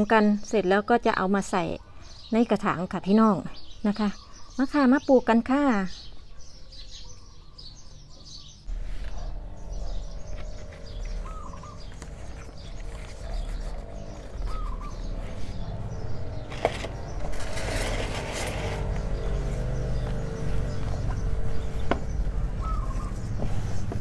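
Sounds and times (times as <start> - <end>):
small birds chirping: 0.0 - 24.0
rustling: 8.7 - 24.0.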